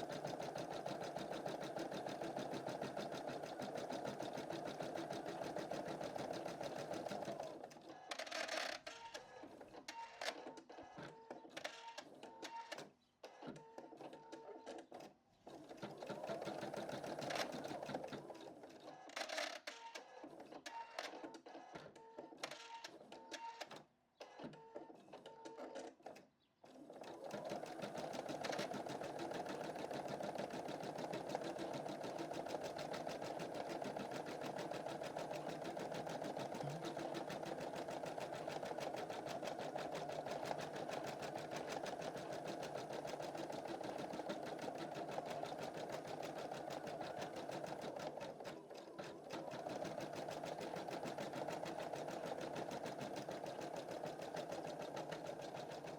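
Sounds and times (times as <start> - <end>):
embroidery machine stitching: 0.0 - 7.6, 15.8 - 18.5, 26.7 - 55.9.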